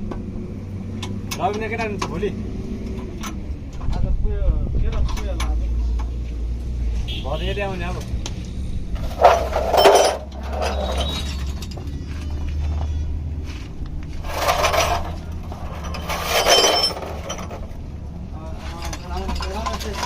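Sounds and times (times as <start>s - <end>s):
metal tools clinking and clanking: 9.0s - 13.0s, 14.2s - 20.0s.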